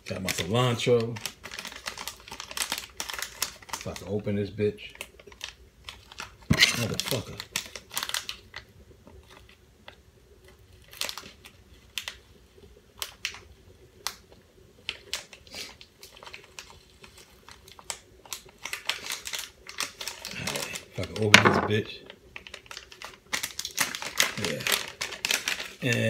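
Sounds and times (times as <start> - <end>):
plastic container clicking and crinkling: 22.4 - 26.0.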